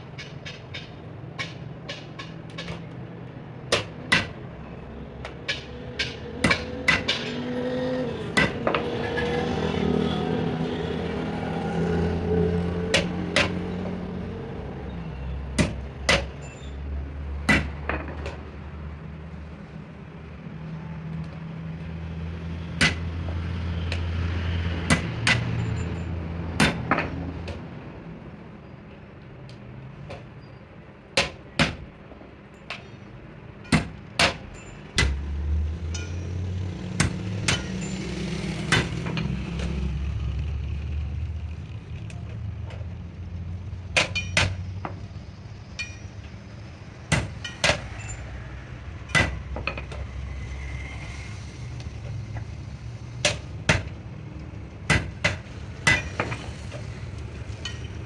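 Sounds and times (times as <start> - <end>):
hammer striking metal: 5.5 - 7.5, 35.9 - 36.4, 37.0 - 39.2, 45.8 - 46.2, 47.1 - 48.2, 49.0 - 50.1, 54.9 - 56.5.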